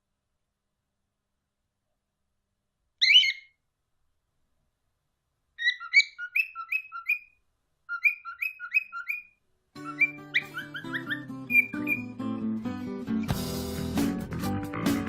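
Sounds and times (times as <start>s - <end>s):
parrots chirping: 3.0s - 3.6s, 5.6s - 12.4s.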